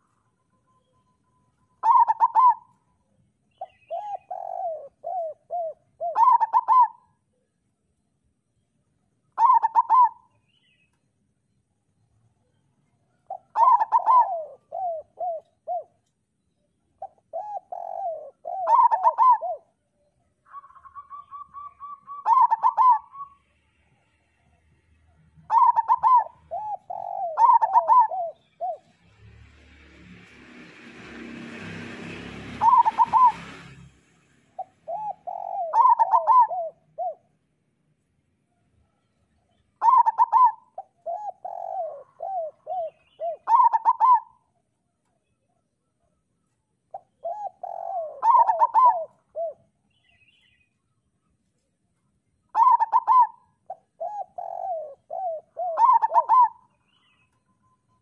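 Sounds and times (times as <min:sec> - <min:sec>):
doves cooing: 0:01.8 - 0:02.8, 0:03.6 - 0:07.1, 0:09.4 - 0:10.3, 0:13.2 - 0:16.0, 0:17.0 - 0:19.8, 0:20.4 - 0:23.4, 0:25.4 - 0:29.0, 0:32.5 - 0:33.5, 0:34.6 - 0:37.3, 0:39.8 - 0:44.5, 0:46.9 - 0:49.7, 0:52.5 - 0:57.1.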